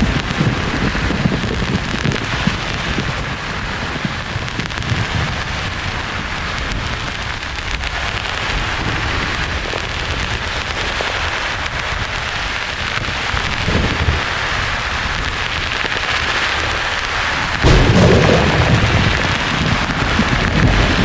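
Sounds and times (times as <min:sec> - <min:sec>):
distant thunder rumbles: 0:17.6 - 0:21.0.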